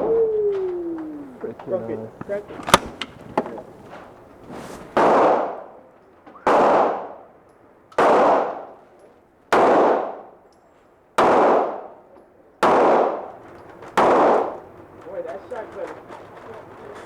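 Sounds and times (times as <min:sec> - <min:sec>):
shotgun blasts echoing: 0:05.0 - 0:05.8, 0:06.4 - 0:07.3, 0:08.0 - 0:08.8, 0:09.5 - 0:10.3, 0:11.2 - 0:12.0, 0:12.6 - 0:13.4, 0:14.0 - 0:14.6.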